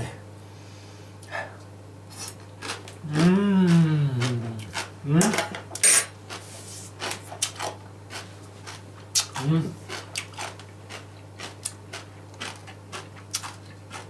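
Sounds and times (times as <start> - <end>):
sauerkraut crunching when chewed: 2.1 - 5.4, 6.3 - 14.0
person humming with enjoyment: 3.0 - 5.4.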